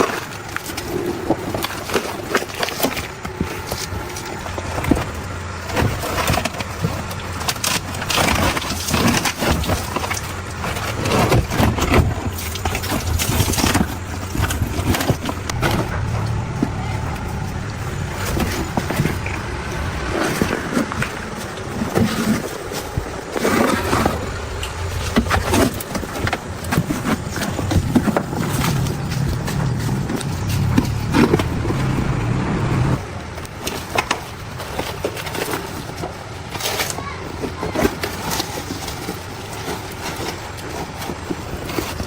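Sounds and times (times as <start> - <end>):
knocks and clatter: 0.0 - 33.0
machine humming: 10.4 - 22.4, 24.2 - 33.2.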